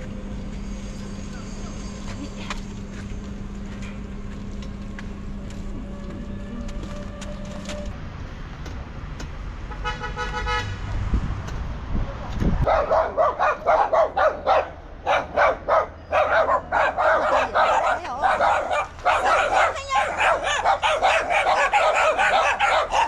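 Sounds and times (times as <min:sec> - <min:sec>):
road traffic: 0:00.0 - 0:23.0
vehicle horn: 0:09.7 - 0:10.9
dog barking: 0:12.7 - 0:23.0.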